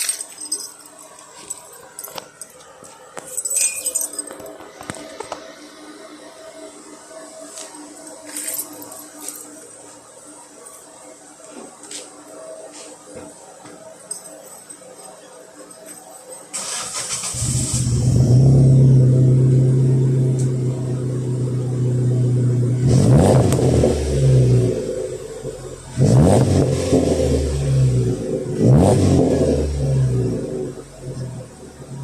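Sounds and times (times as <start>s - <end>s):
car engine idling and revving: 16.6s - 32.0s.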